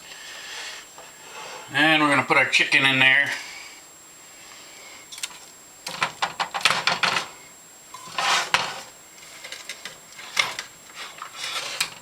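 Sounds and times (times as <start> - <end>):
scraping rustle: 7.9 - 12.0.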